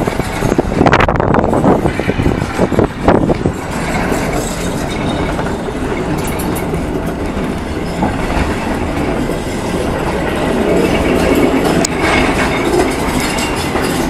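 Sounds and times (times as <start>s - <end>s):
train wheels on rails: 0.0s - 14.0s.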